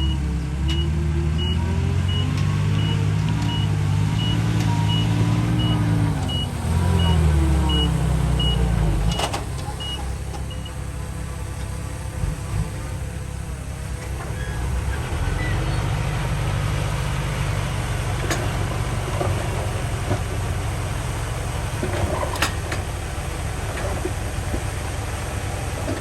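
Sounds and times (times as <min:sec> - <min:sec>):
reversing alarm beeping: 0:00.0 - 0:09.2
heavy diesel machinery running: 0:00.0 - 0:26.0.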